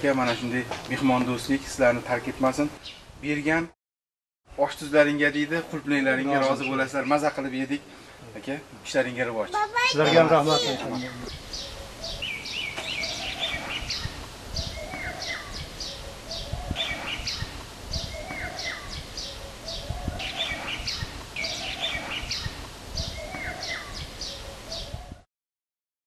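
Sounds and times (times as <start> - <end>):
birds chirping and calling: 0.0 - 1.6, 6.2 - 8.2, 9.4 - 25.2.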